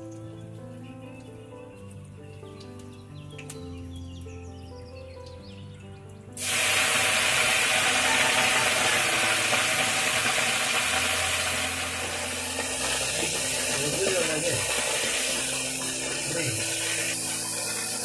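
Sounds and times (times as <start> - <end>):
quiet background music: 0.0 - 18.0
loud steady hiss: 6.4 - 18.0.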